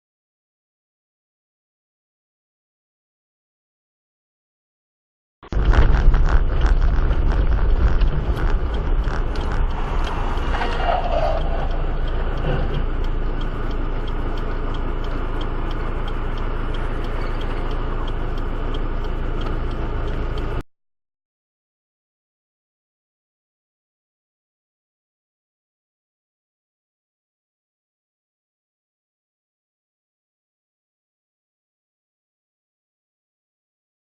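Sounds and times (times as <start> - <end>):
vehicle engine and road rumble: 5.4 - 20.6.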